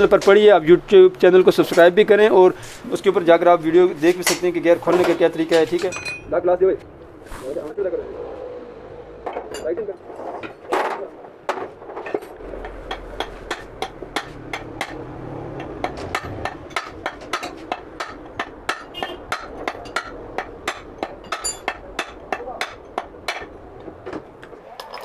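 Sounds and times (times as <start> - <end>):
hammer knocking on metal gearbox: 11.5 - 23.6.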